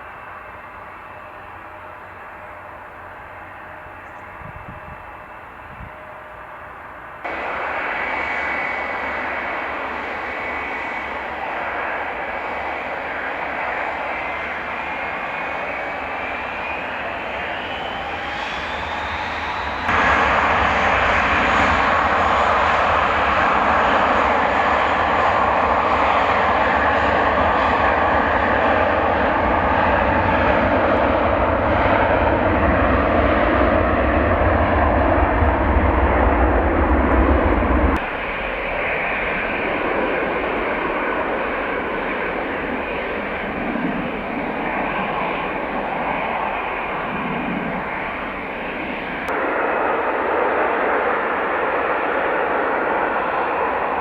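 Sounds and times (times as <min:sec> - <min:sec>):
jet engines running: 0:00.0 - 0:54.0.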